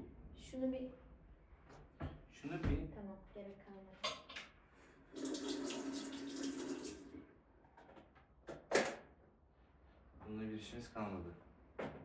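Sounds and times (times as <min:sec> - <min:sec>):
tap running into a sink: 0:05.2 - 0:07.0.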